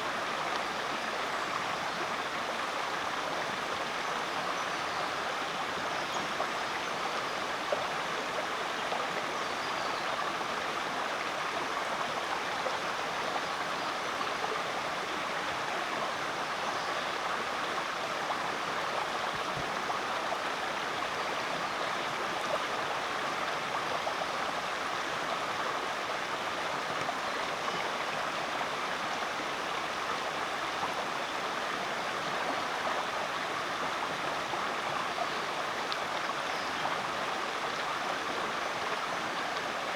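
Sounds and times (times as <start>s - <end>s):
creek water over rocks: 0.0s - 39.9s.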